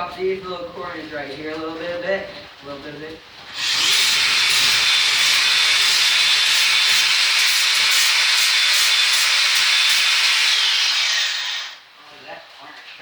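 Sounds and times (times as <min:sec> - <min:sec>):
angle grinder grinding metal: 0:03.5 - 0:11.8.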